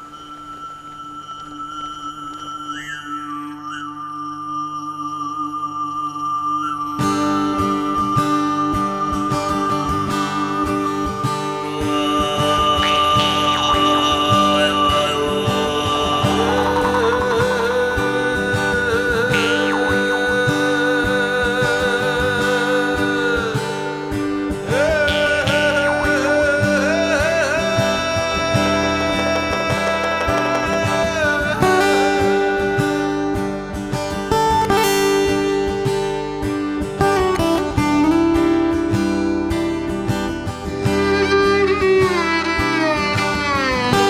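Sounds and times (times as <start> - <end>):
guitar-led background music: 6.8 - 44.0.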